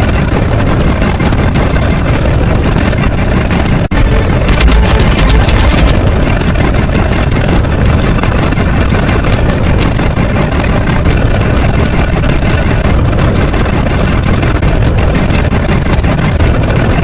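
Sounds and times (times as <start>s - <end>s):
loud low rumbling: 0.0s - 17.0s.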